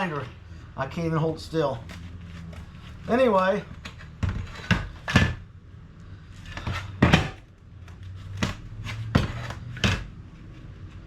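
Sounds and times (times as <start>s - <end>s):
metal parts knocking and clunking: 1.9s - 5.5s, 6.4s - 10.2s.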